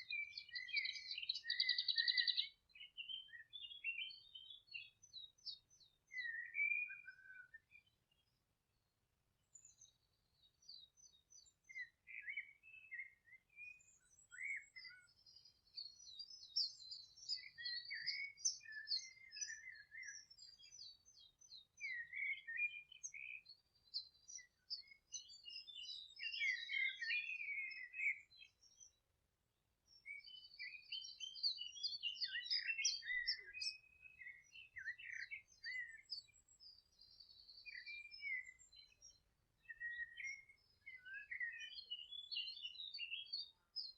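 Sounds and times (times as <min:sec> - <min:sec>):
songbirds singing and chirping: 0:00.0 - 0:43.9.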